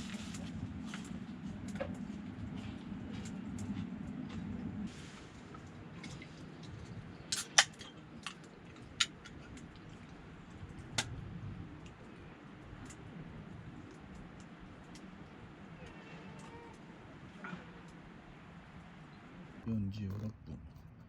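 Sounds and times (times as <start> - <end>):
low steady background: 16.5 - 21.0.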